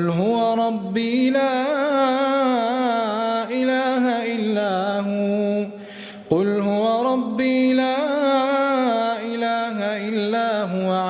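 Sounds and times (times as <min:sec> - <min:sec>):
man chanting melodically: 0:00.0 - 0:11.0
man breathing: 0:05.7 - 0:06.3.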